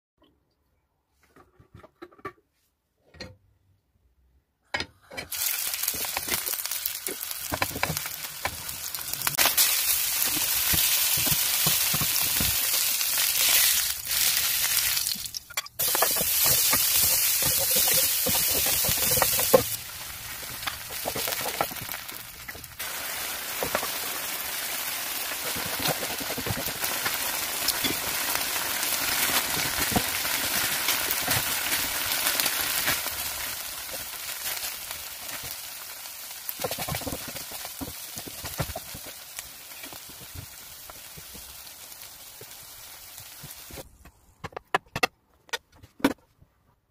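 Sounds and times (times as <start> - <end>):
food sizzling in a frying pan: 5.3 - 43.8
wooden spoon stirring: 15.8 - 19.8.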